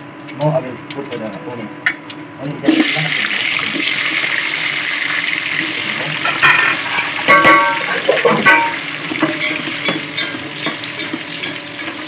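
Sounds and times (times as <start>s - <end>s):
hot oil sizzling in a pot: 2.6s - 12.0s.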